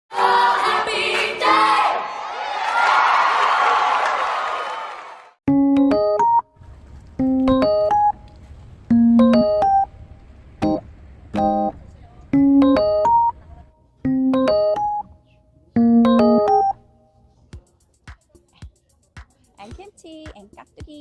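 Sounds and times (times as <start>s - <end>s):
electric piano phrases: 5.5s - 15.2s, 15.8s - 16.8s.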